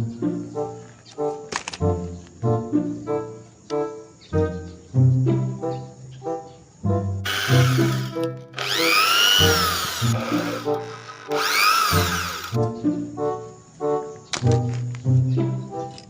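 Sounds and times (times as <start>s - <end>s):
background music: 0.0s - 16.0s
electric drill whirring: 7.3s - 12.6s.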